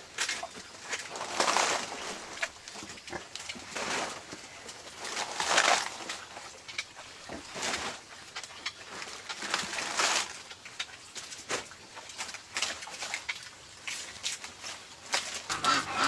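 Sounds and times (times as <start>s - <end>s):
harsh animal calls: 15.5s - 16.0s.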